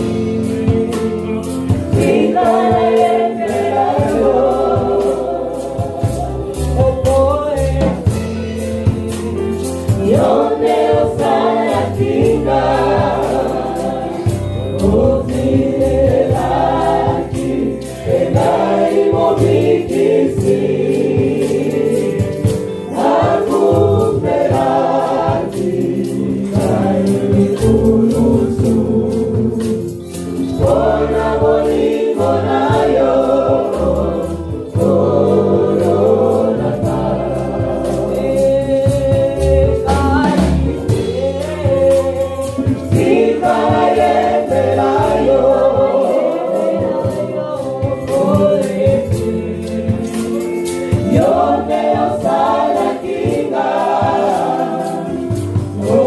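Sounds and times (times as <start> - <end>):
bass: 0.0 - 56.0
gospel choir singing: 0.0 - 56.0
percussion beat: 0.0 - 56.0.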